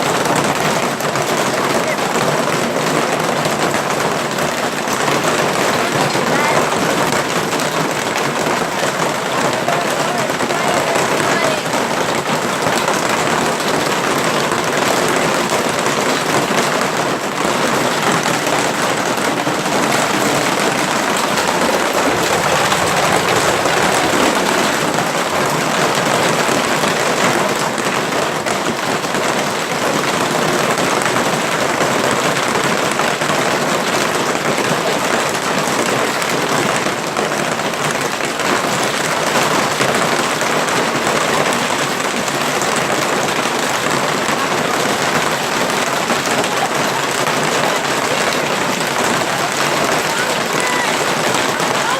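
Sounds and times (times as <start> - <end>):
hailstones pelting down: 0.0 - 51.9.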